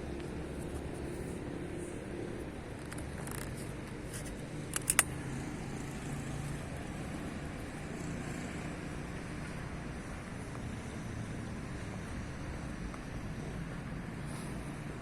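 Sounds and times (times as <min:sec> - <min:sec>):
road traffic hum: 0:00.0 - 0:15.0
sharp clicks: 0:04.7 - 0:05.2.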